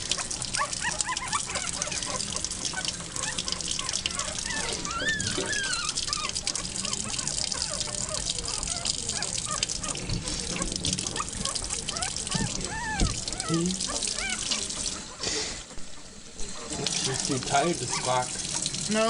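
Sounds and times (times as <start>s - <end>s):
tap water running and splashing: 0.0s - 19.0s
puppy whimpering: 0.2s - 15.2s.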